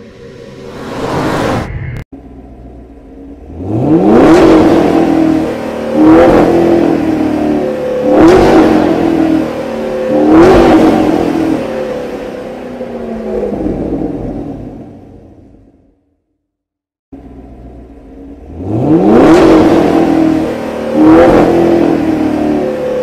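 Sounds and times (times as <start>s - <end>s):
car engine revving: 0.1s - 15.6s, 17.2s - 23.0s.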